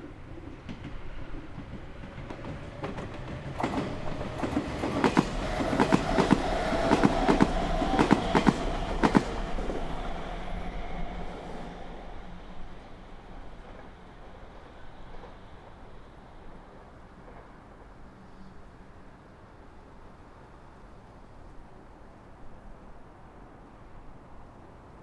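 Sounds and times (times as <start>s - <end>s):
train rumble: 0.0s - 22.3s
train wheels clicking on rail joints: 0.1s - 18.5s.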